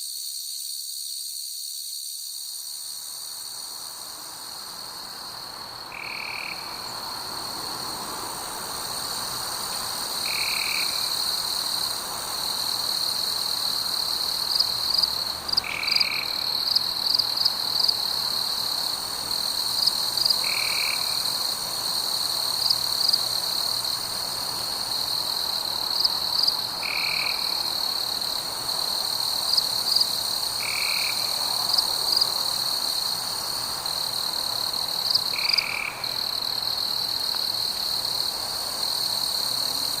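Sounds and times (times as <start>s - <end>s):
frogs calling: 5.9s - 7.3s, 14.2s - 17.9s, 35.0s - 36.4s.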